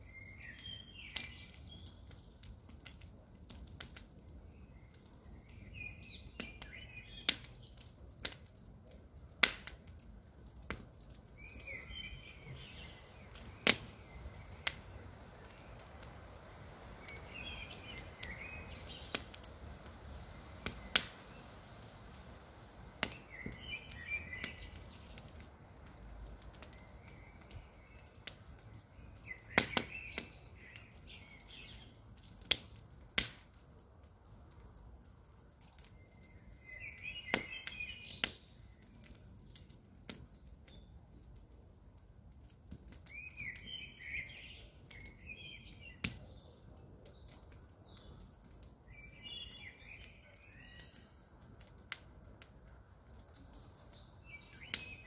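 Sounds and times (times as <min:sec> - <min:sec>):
birds chirping: 0:00.0 - 0:02.5, 0:11.4 - 0:16.1, 0:16.8 - 0:21.6, 0:23.1 - 0:25.5, 0:28.9 - 0:32.0, 0:35.8 - 0:41.0, 0:43.0 - 0:51.8, 0:53.1 - 0:55.0
campfire crackling and popping: 0:00.0 - 0:55.0.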